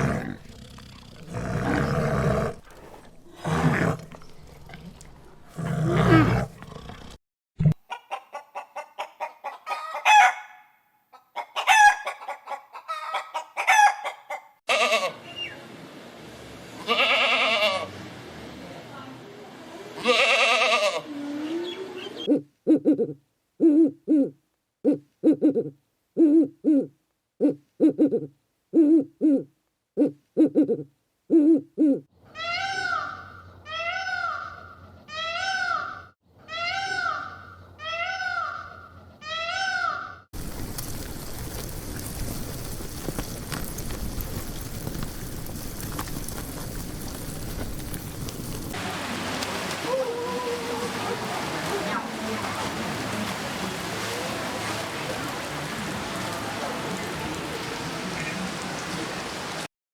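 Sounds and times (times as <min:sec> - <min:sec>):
rising and falling animal calls: 0:48.7 - 0:58.6.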